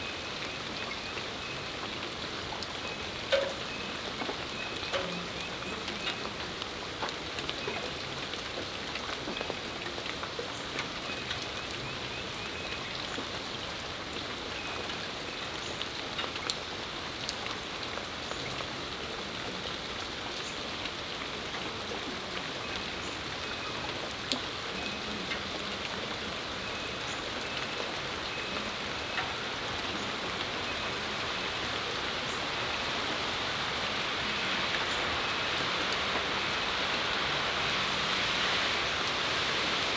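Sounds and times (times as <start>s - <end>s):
steady rain hiss: 0.0s - 39.9s
sharp drips: 0.2s - 13.3s.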